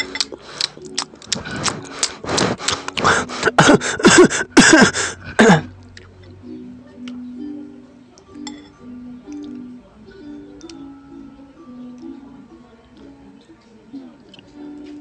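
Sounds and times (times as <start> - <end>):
wet chewing and crunching: 0.0 - 3.6
quiet background music: 0.0 - 15.0.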